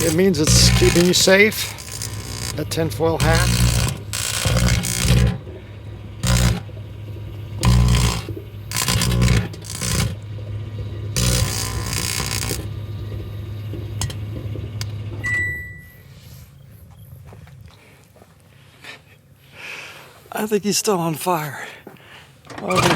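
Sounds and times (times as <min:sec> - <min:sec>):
tinfoil arcing crackles and snaps: 0:00.0 - 0:05.4, 0:06.2 - 0:06.7, 0:07.6 - 0:10.2, 0:11.2 - 0:12.6
microwave oven humming: 0:00.0 - 0:17.7
microwave beep: 0:09.0 - 0:16.2.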